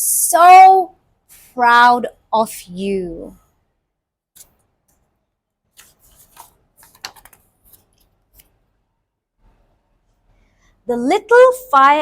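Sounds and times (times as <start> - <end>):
paper pages turning: 5.7 - 8.6.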